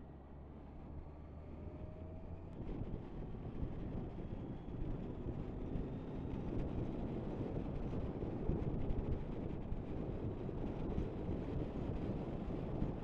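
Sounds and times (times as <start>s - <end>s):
motorcycle road and engine noise: 0.0s - 13.0s.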